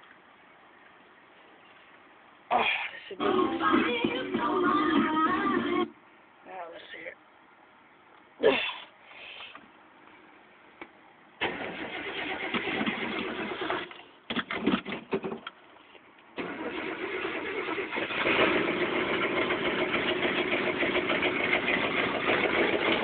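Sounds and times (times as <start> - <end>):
starter motor cranking: 11.4 - 14.0, 16.4 - 23.0
truck engine running: 16.4 - 23.0.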